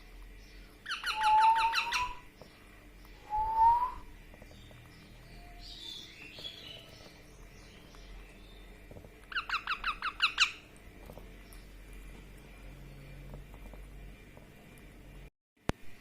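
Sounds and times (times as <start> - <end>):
baby parrot chirping: 0.8 - 2.4, 9.2 - 10.7.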